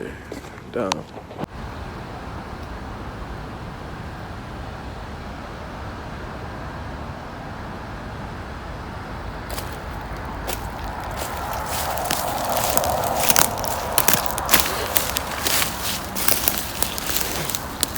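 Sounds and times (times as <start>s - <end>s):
road traffic hum: 0.2s - 17.9s
crunching footsteps: 9.5s - 17.9s.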